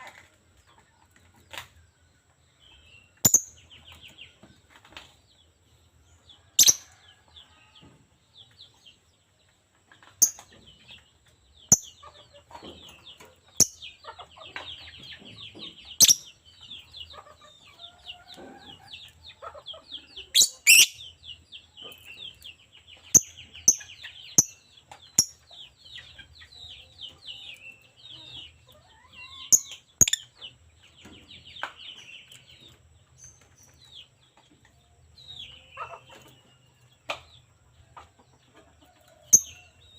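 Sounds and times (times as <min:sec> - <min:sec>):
bird chirping and twittering: 0:00.1 - 0:09.3, 0:09.9 - 0:39.9.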